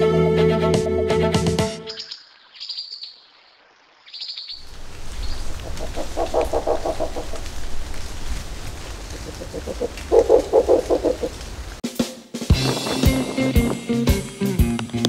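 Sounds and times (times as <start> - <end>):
birds chirping: 1.8 - 11.8
lower repeated bird calls: 1.8 - 11.8.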